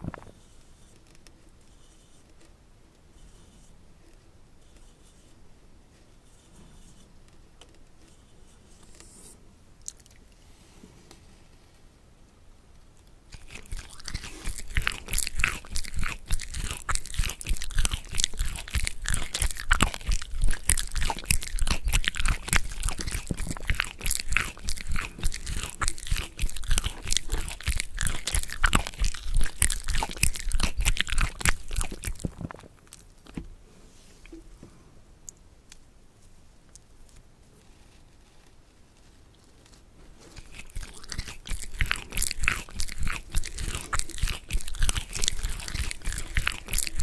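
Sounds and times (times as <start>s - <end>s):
person chewing crisp food: 13.3s - 33.3s, 40.2s - 47.0s.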